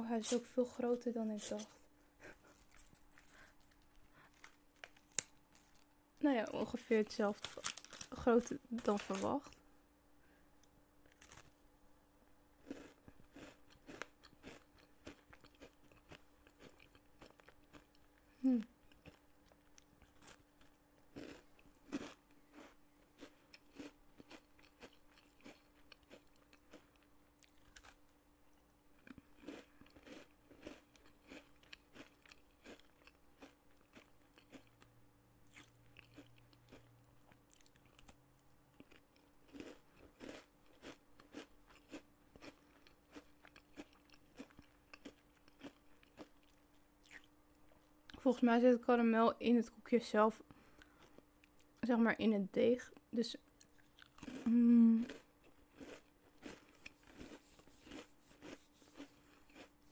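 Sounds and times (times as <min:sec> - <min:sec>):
biscuit crunching: 0:02.2 - 0:05.9, 0:07.3 - 0:09.6, 0:11.1 - 0:11.6, 0:12.6 - 0:18.2, 0:18.8 - 0:28.1, 0:29.0 - 0:34.9, 0:35.5 - 0:47.9, 0:53.5 - 0:59.9.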